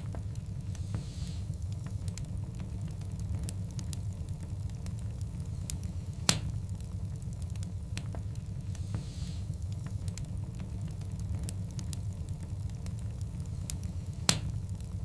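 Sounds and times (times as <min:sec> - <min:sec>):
wood fire crackling: 0:00.0 - 0:15.0
sharp snap: 0:06.2 - 0:06.6, 0:14.2 - 0:14.5.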